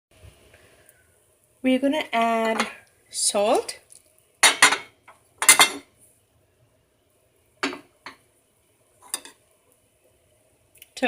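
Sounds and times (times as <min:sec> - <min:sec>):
spoon clinking against cookware: 0:04.4 - 0:05.8.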